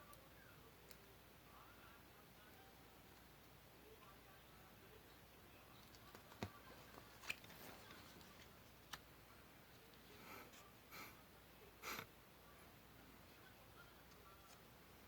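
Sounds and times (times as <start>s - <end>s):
paper rustling: 5.9s - 9.1s.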